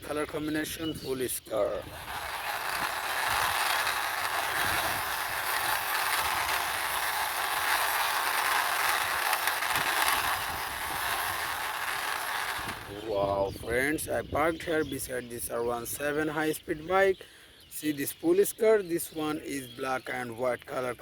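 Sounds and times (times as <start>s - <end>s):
toy car wheels rolling: 0.3s - 13.2s.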